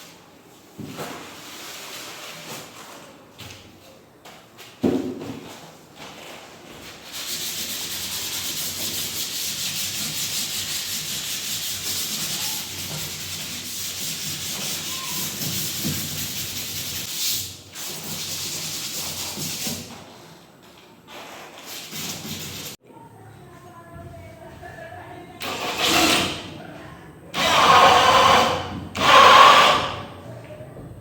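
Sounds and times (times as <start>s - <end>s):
drywall being sanded: 6.9s - 20.1s, 21.1s - 22.8s.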